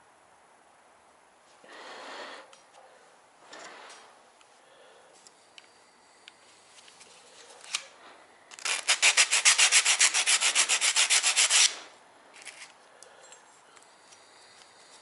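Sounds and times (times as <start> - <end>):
sanding strokes on metal: 8.6 - 11.9.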